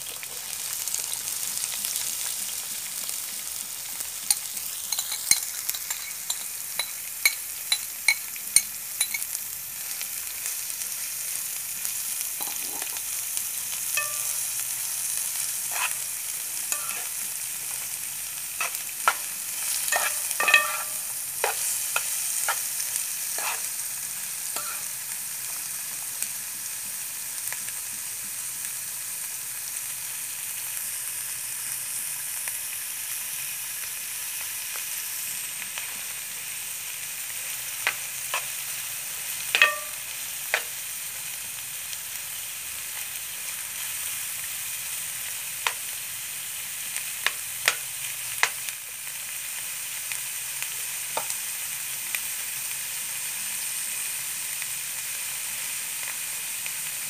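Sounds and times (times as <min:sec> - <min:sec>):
onions sizzling in a pan: 0:00.0 - 0:57.0
metal spoon clinking against pan: 0:04.3 - 0:09.4, 0:14.0 - 0:14.5, 0:15.7 - 0:16.0, 0:16.7 - 0:17.2, 0:18.6 - 0:22.7, 0:23.4 - 0:23.7, 0:24.6 - 0:24.9, 0:39.5 - 0:40.7.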